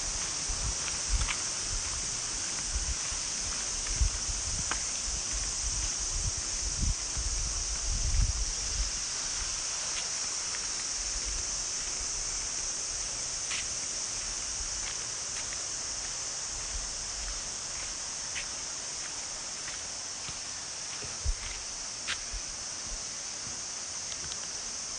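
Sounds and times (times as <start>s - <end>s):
high-pitched insect chorus: 0.0s - 24.9s
low rumbling on microphone: 3.7s - 9.0s
faint ticks: 24.1s - 24.6s.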